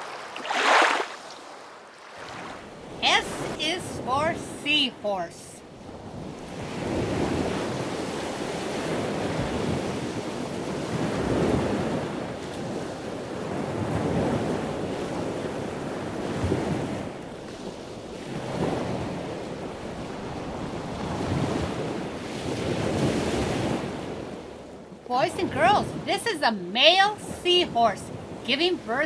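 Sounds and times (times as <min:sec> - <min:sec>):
rushing water: 0:00.0 - 0:05.3.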